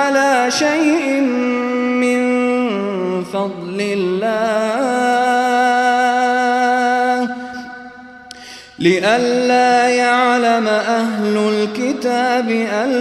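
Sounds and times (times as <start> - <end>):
man chanting melodically: 0.0 - 13.0
breath: 7.4 - 8.8.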